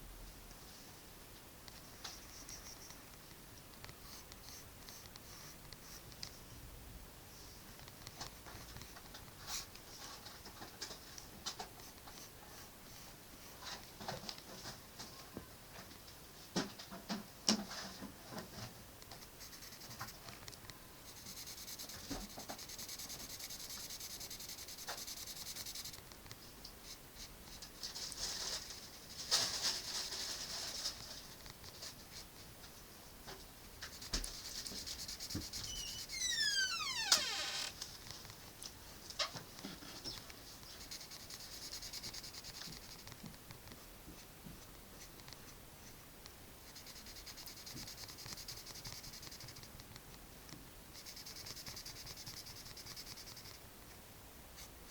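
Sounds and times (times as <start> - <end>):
drawing tool scratching paper: 19.2 - 20.2, 21.1 - 26.0, 33.8 - 36.2, 39.6 - 43.2, 46.7 - 49.7, 51.0 - 53.6
high squeaks falling in pitch: 35.6 - 37.7.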